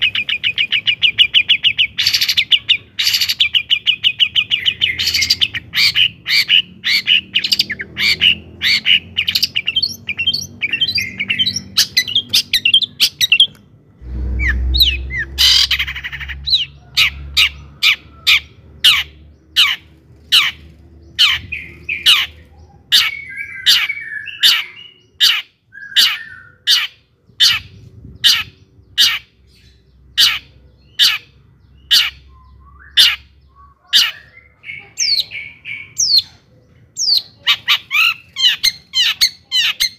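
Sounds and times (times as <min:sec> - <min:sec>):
bird calling harsh sharp notes: 0:00.0 - 0:36.3, 0:37.0 - 0:39.9
noisy burst: 0:13.9 - 0:16.6.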